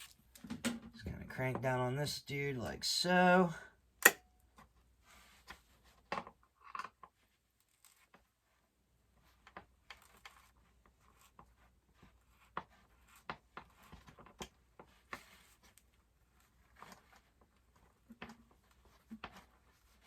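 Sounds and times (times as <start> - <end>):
hand tool clicking and tapping: 4.0 - 4.3.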